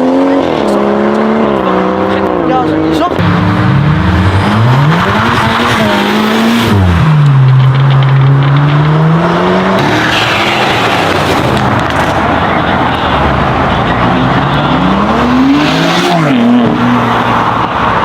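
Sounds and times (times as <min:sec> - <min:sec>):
sports car engine accelerating: 0:00.0 - 0:18.0.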